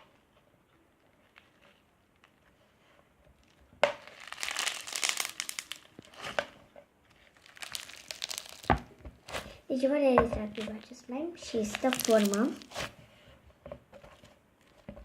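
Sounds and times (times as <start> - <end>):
foam-bead slime crackling: 1.0 - 9.8, 10.4 - 13.0.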